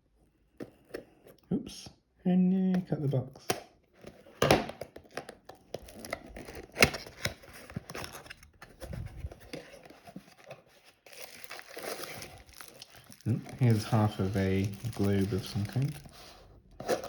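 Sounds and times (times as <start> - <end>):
cardboard packaging clicks and rustles: 3.9 - 17.0.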